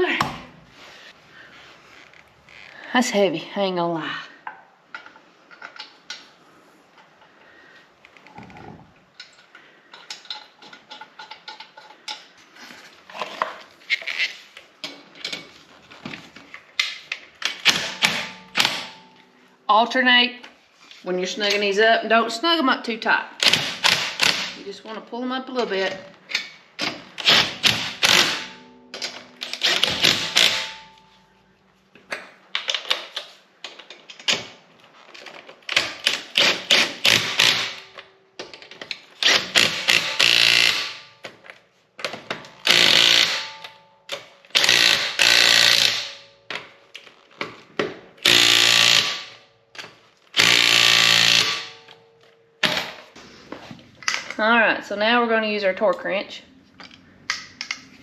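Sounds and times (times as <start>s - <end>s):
wrench clicking on lug nuts: 26.3s - 30.7s.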